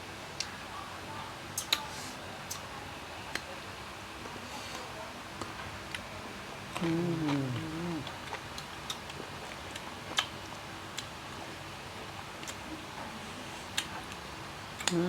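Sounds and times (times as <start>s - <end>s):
person humming: 6.8s - 8.1s
chewing mouth clicks and smacks: 6.8s - 11.1s.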